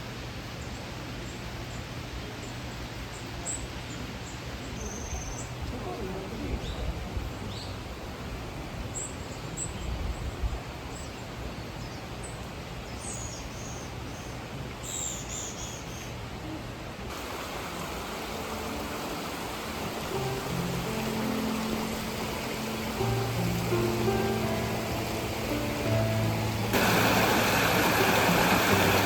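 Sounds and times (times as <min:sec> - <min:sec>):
small birds chirping: 0:00.6 - 0:07.9, 0:08.9 - 0:16.2, 0:17.1 - 0:29.0
mountain stream rushing: 0:17.0 - 0:29.0
soft background music: 0:17.5 - 0:29.0.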